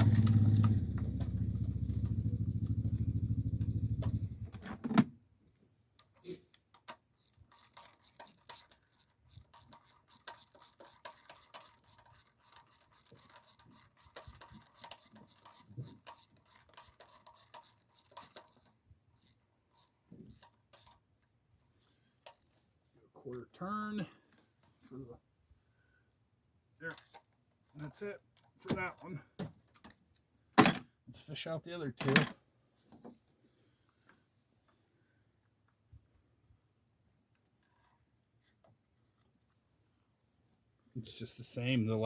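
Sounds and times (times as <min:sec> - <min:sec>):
ratchet clicking: 0:06.8 - 0:21.0.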